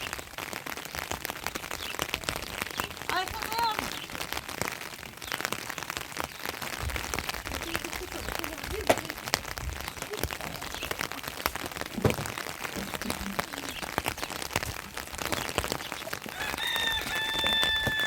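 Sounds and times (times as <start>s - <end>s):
heavy rain pattering: 0.0s - 18.0s.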